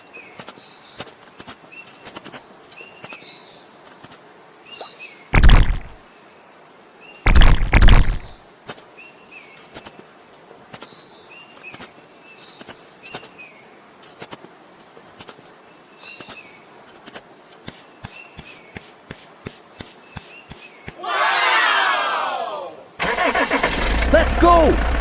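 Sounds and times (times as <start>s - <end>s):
small birds chirping: 0.0s - 21.0s
sharp clicks: 5.4s - 6.0s, 7.3s - 8.4s.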